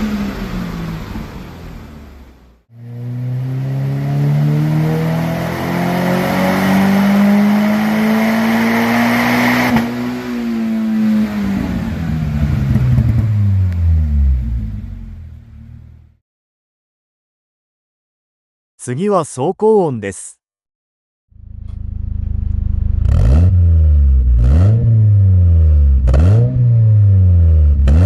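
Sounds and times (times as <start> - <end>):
car engine revving up: 0.0 - 16.1, 21.4 - 28.0.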